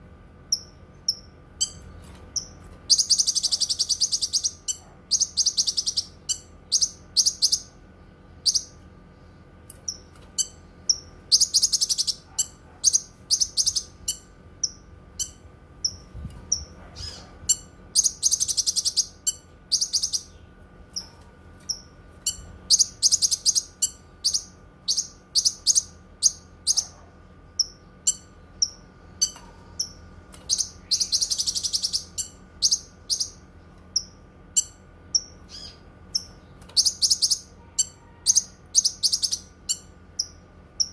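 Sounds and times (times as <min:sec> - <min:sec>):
bird chirping and trilling: 0:00.5 - 0:07.8, 0:08.4 - 0:08.8, 0:09.8 - 0:40.9.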